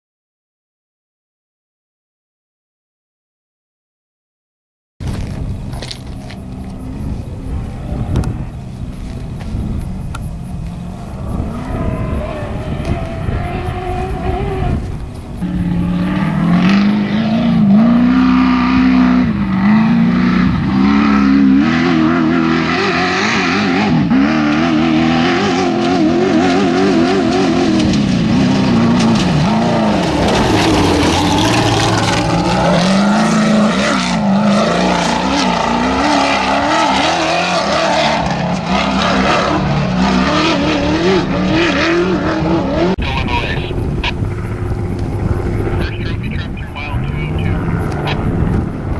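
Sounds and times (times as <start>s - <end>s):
race vehicle engine revving: 5.0s - 48.9s
rushing noise: 28.0s - 34.4s.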